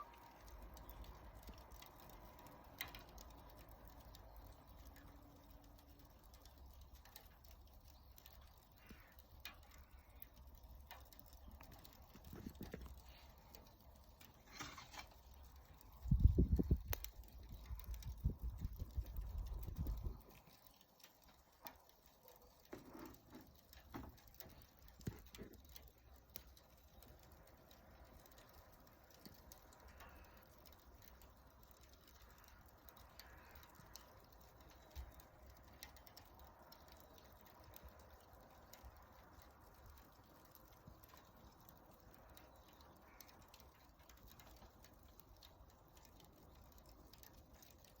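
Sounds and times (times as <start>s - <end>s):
wood fire crackling: 0.0s - 48.0s.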